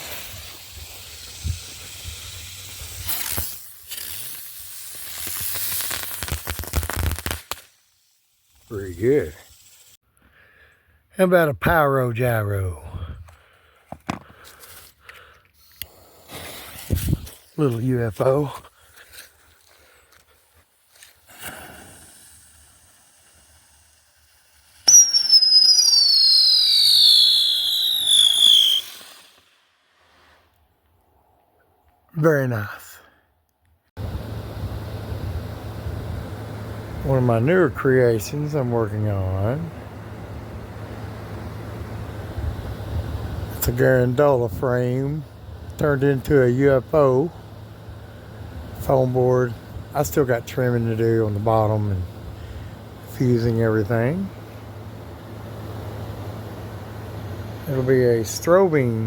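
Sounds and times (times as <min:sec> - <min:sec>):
firework pops and cracks: 0:00.0 - 0:08.2, 0:20.9 - 0:30.2
spinner firework hissing: 0:00.0 - 0:10.0, 0:15.6 - 0:30.6, 0:34.0 - 0:59.0
firework whistle sliding down: 0:24.3 - 0:30.4.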